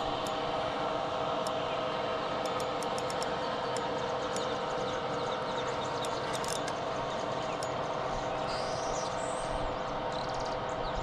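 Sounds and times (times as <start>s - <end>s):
steady mechanical hum: 0.0s - 11.0s
birds chirping: 1.5s - 11.0s.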